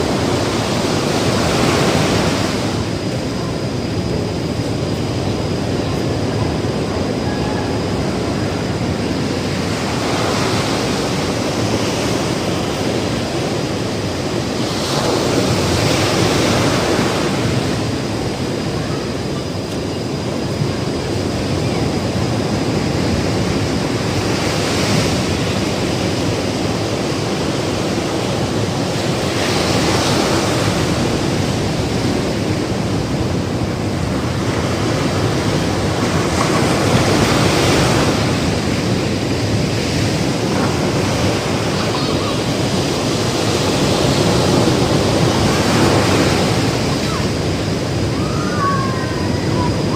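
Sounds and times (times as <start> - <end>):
ocean waves crashing on beach: 0.0 - 49.9.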